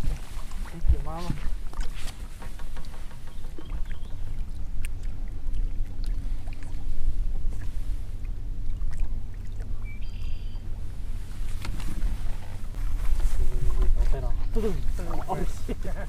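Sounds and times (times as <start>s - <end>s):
boat motor rumbling: 0.0s - 16.0s
faint hum: 3.1s - 16.0s
high chirp: 9.8s - 10.7s.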